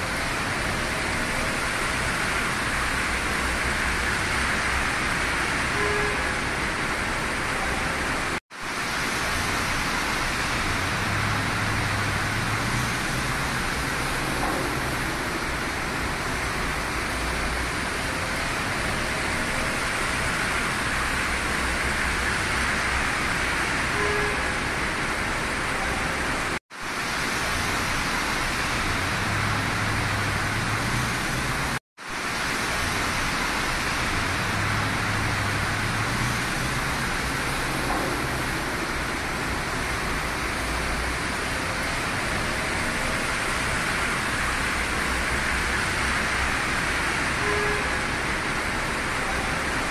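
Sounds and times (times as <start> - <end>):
rain and tyre spray hiss: 0.0 - 49.9
low road rumble: 32.4 - 49.9.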